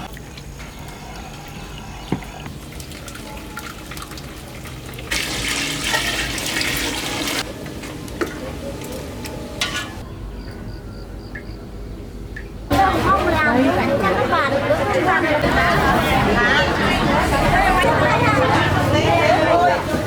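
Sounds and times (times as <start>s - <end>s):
water pouring: 0.0s - 9.1s.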